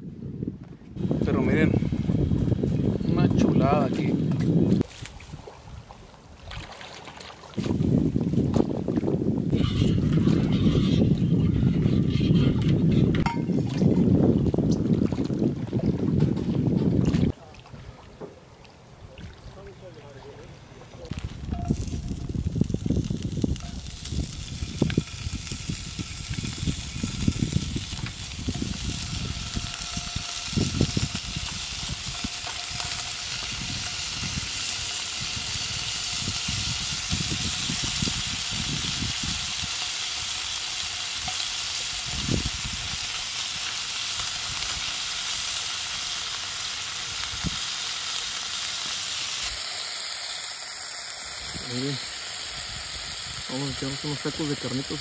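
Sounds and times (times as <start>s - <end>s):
meat sizzling in a pan: 21.7s - 55.0s.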